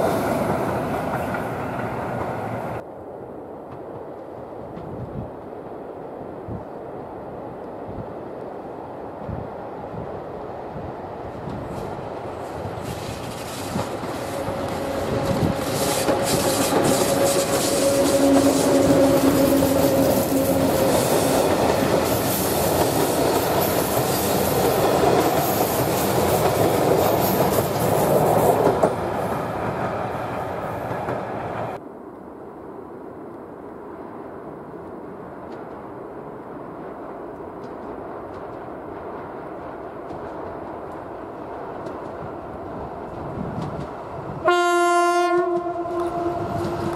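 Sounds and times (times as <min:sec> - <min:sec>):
distant train rumble: 0:00.0 - 0:46.9
locomotive whine: 0:11.0 - 0:31.8, 0:42.0 - 0:46.9.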